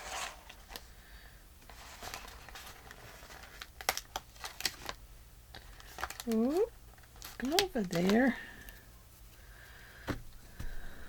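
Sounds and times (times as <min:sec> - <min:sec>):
paper rustling: 0:00.0 - 0:00.8, 0:01.7 - 0:08.3.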